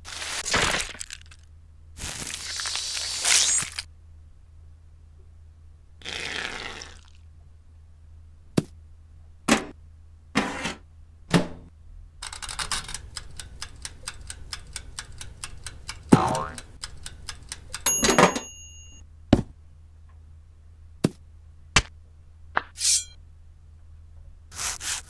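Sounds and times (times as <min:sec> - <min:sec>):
wind-up timer ticking: 0:12.2 - 0:18.0
brief scrape: 0:22.8 - 0:23.2.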